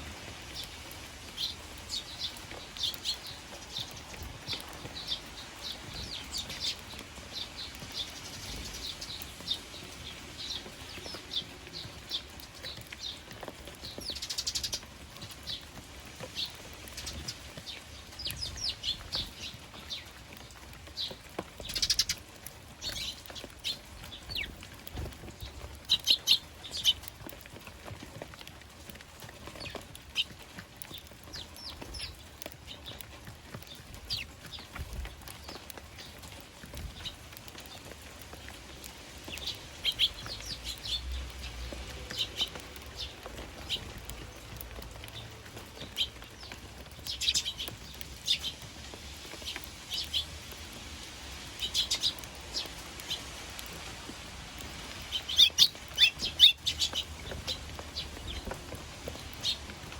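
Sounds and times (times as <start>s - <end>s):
sparrows chirping: 0.0s - 59.9s.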